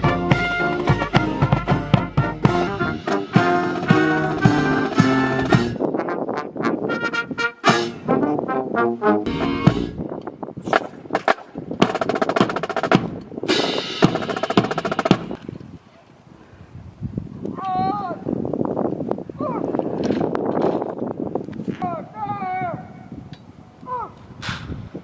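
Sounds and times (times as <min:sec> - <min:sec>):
drum strokes: 0:00.0 - 0:05.8, 0:10.8 - 0:15.4
brass chords: 0:00.0 - 0:10.1
snare drum rolls: 0:10.7 - 0:15.4.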